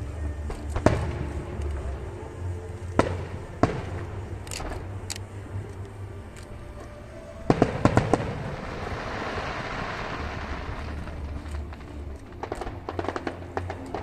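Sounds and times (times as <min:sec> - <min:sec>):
firework crackle: 0:07.4 - 0:14.0
fireworks bangs: 0:07.4 - 0:14.0.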